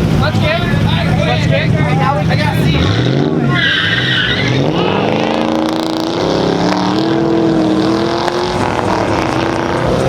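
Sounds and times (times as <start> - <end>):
car engine accelerating: 0.0 - 10.0.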